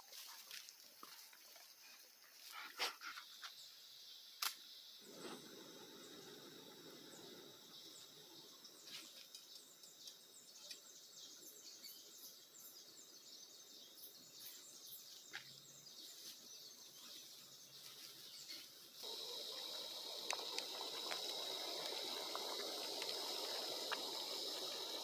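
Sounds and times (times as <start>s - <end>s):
small birds chirping: 4.8s - 25.0s
faint clicks: 19.0s - 25.0s.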